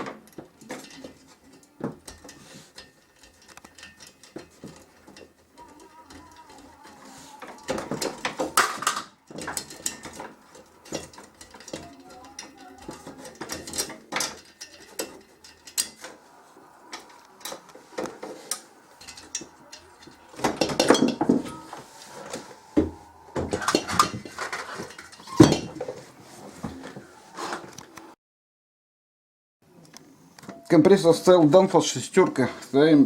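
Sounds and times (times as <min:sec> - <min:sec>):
metal objects clinking: 0:00.0 - 0:26.0
clicks and knocks: 0:16.8 - 0:26.0.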